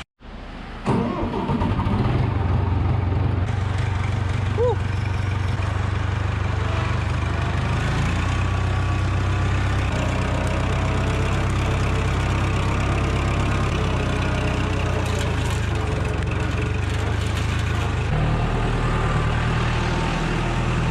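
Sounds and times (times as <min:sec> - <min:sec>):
tractor engine running: 0:00.0 - 0:20.9
scraping manure: 0:09.5 - 0:18.2.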